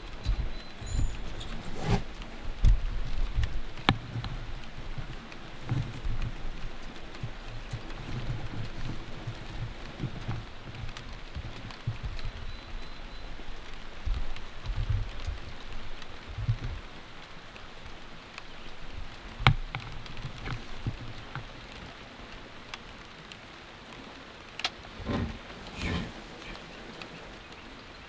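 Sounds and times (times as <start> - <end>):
raindrops ticking: 0.0 - 28.0
steady rain falling: 0.0 - 28.0.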